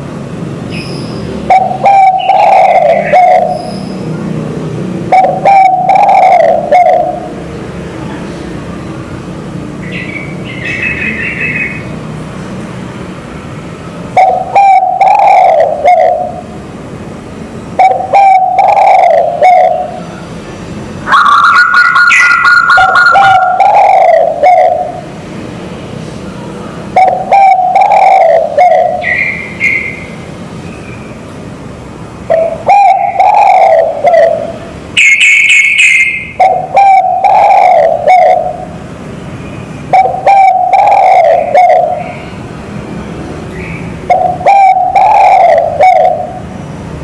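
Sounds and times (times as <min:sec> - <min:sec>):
higher steady bird call: 0:00.7 - 0:04.1, 0:05.1 - 0:07.4, 0:09.8 - 0:12.0, 0:14.1 - 0:16.6, 0:17.8 - 0:20.3, 0:21.0 - 0:25.1, 0:27.0 - 0:31.2, 0:32.3 - 0:38.8, 0:39.4 - 0:42.5, 0:43.5 - 0:46.5
doves cooing: 0:01.4 - 0:03.8, 0:05.1 - 0:07.4, 0:14.2 - 0:16.6, 0:17.8 - 0:20.1, 0:21.1 - 0:25.1, 0:27.0 - 0:30.0, 0:32.3 - 0:38.8, 0:39.9 - 0:42.2, 0:44.0 - 0:46.5.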